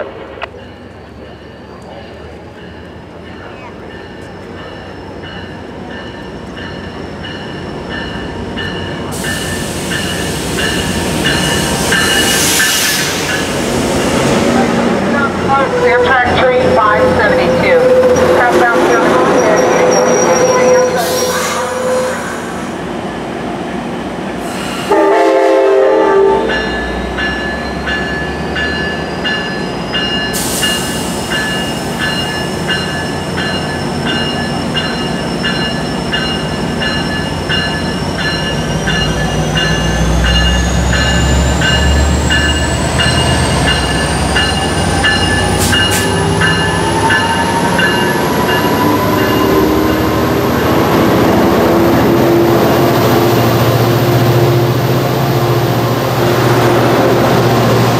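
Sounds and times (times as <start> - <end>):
train pulling away: 0.0 - 57.9
train bell ringing: 0.5 - 13.6, 15.5 - 22.1, 26.1 - 50.5
train horn blast: 15.6 - 22.4, 24.8 - 26.7.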